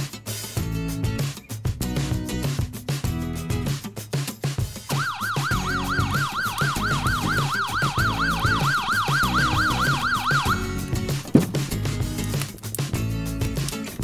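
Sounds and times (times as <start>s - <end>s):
fire engine siren warbling: 4.9s - 11.0s.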